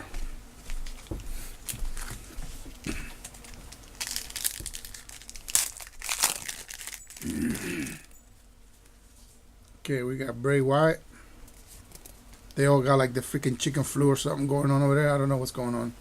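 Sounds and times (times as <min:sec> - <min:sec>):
foil wrapper crinkling and tearing: 0:00.8 - 0:08.1.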